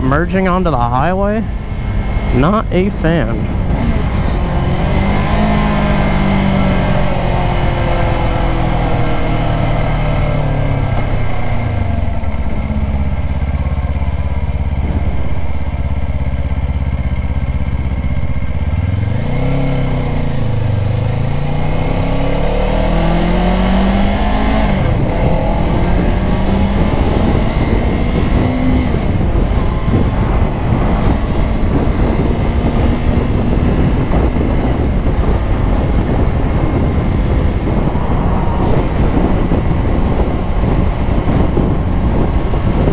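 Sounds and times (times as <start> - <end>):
motorcycle engine revving: 0.0 - 42.9
wind noise on microphone: 0.0 - 42.9.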